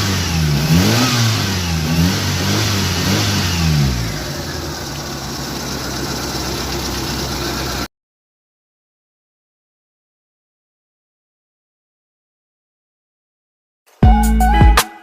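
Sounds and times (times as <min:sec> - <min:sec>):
car engine revving and idling: 0:00.0 - 0:07.9.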